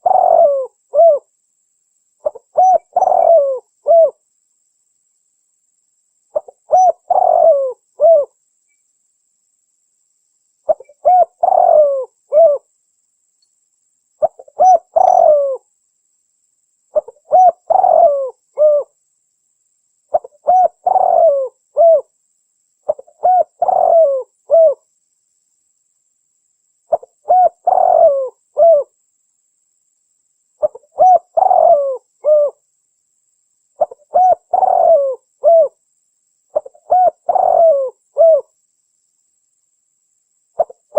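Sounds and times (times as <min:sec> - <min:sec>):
dove cooing: 0:00.0 - 0:01.3, 0:02.2 - 0:04.2, 0:06.3 - 0:08.4, 0:10.7 - 0:12.7, 0:14.2 - 0:15.6, 0:16.9 - 0:19.0, 0:20.1 - 0:22.1, 0:22.9 - 0:24.8, 0:26.9 - 0:28.9, 0:30.6 - 0:32.6, 0:33.8 - 0:35.8, 0:36.5 - 0:38.5, 0:40.6 - 0:40.9.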